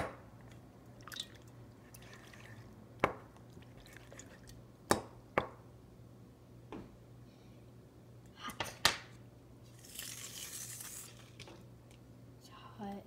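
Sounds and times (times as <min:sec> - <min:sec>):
wet squelches: 0:00.5 - 0:02.8
water dripping: 0:01.0 - 0:02.6.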